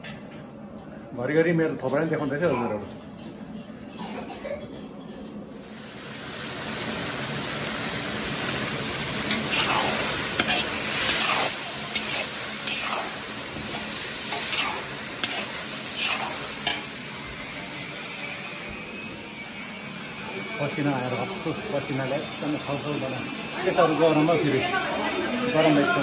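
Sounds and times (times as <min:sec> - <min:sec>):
chicken sizzling in a wok: 0:05.6 - 0:26.0
ladle scraping and stirring: 0:09.3 - 0:16.9.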